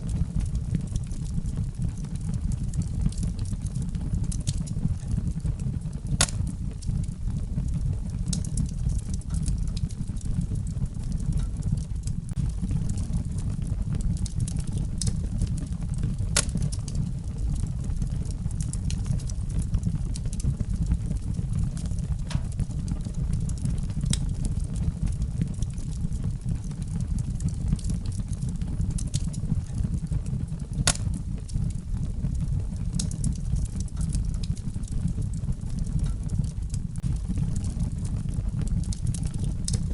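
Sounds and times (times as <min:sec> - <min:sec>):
fire crackling and popping: 0:00.0 - 0:39.9
fire flames rumbling: 0:00.0 - 0:39.9.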